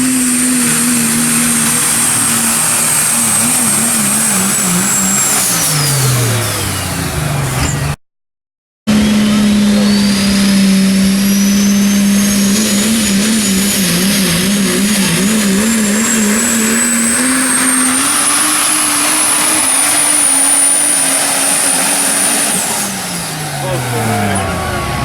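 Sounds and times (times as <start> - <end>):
diesel truck engine under load: 0.0 - 8.0, 8.8 - 25.0
turbocharger whistle: 0.0 - 8.0, 8.9 - 25.0.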